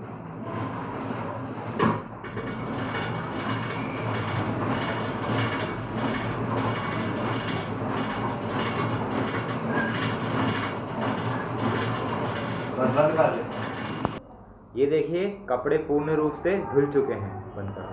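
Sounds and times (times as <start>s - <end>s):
faint uneven clatter: 0.0s - 14.2s
washing machine rumbling: 0.0s - 14.2s.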